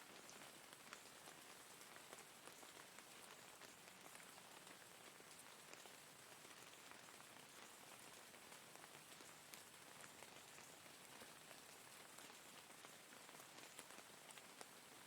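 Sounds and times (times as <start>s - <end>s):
rain drops pattering: 0.0s - 15.0s.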